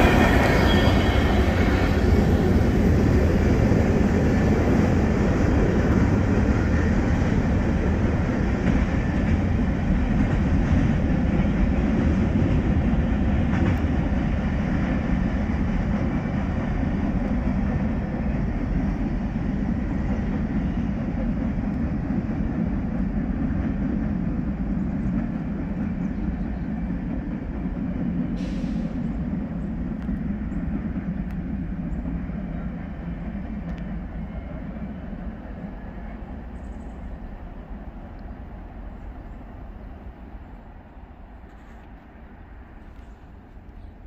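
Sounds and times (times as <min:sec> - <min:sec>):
freight train wheels rumbling: 0:00.0 - 0:44.0
brief hiss: 0:28.4 - 0:29.2.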